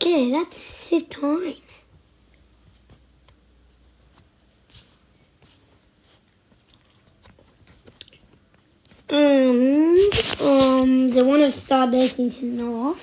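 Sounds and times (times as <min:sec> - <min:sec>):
person chewing: 0:06.3 - 0:07.1, 0:07.8 - 0:08.4.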